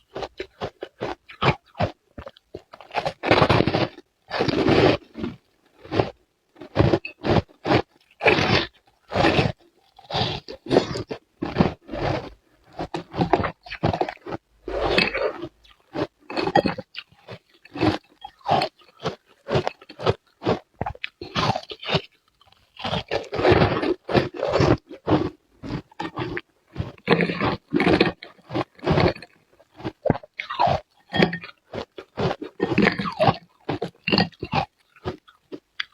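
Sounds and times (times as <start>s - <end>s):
ice being crunched and chewed: 0.0s - 35.9s.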